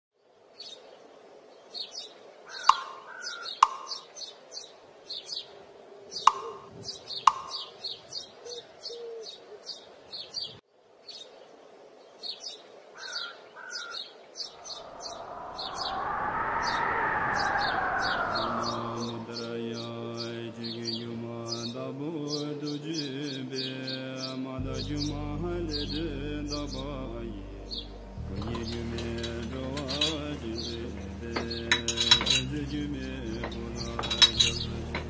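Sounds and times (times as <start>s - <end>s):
small birds chirping: 0.5s - 35.0s
pitched drone: 14.6s - 19.7s, 24.6s - 35.0s.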